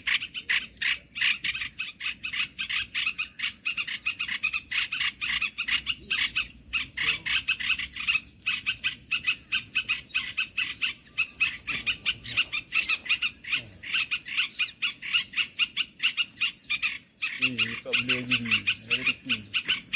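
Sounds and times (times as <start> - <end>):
raspy bird chatter: 0.0 - 19.9
brief higher bird calls: 9.3 - 19.9.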